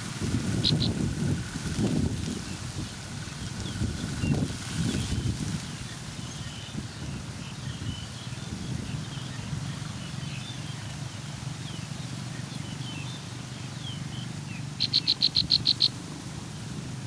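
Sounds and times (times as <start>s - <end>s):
faint bird chirps: 14.8s - 16.0s.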